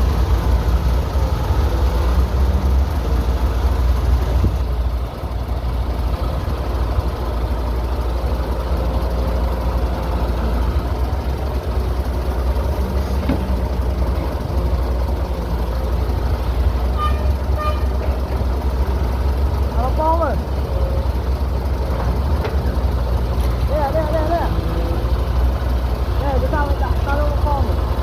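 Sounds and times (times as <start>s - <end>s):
diesel engine rumbling: 0.0s - 28.0s.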